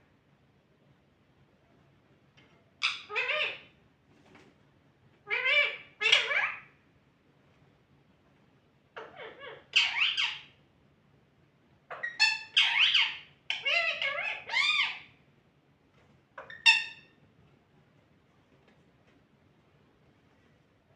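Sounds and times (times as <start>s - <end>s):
parrot chattering calls: 2.8s - 3.7s, 5.3s - 6.7s, 9.0s - 10.5s, 11.9s - 15.1s, 16.4s - 17.1s.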